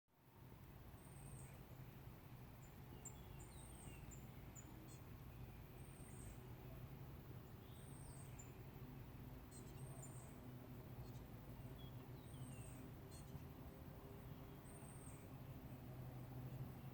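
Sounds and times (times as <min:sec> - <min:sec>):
faint woodland birds calling: 0:00.5 - 0:16.9.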